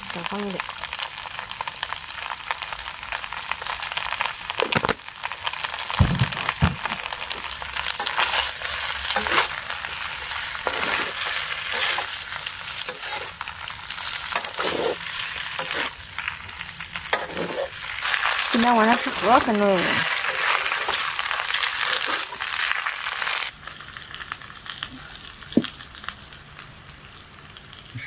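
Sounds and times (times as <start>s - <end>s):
noodles sizzling in a pan: 0.0s - 28.0s
spatula scraping: 8.0s - 16.0s, 17.0s - 22.7s.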